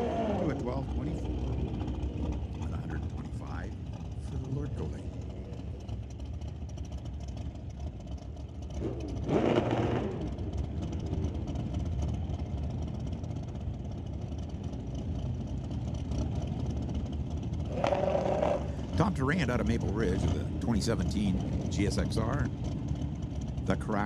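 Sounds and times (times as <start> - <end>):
motorcycle engine rev: 0.0 - 24.0
motorcycle engines rumbling: 0.0 - 24.0.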